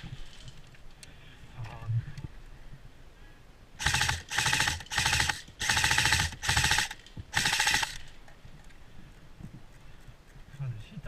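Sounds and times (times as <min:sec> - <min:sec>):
airsoft gun firing bursts: 0:03.8 - 0:08.2.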